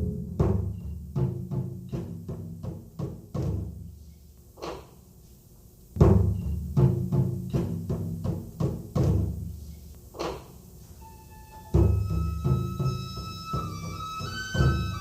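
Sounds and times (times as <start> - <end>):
taiko drum strikes: 0.0 - 3.8, 6.0 - 9.5, 11.7 - 15.0.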